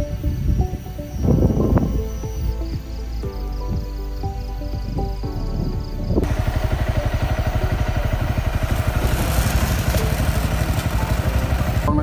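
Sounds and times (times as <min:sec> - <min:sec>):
small motorcycle engine running hard: 0:06.2 - 0:12.0.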